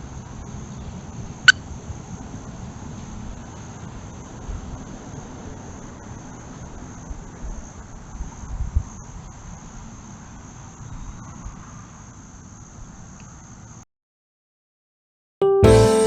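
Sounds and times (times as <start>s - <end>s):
crickets chirping: 0.0s - 13.8s.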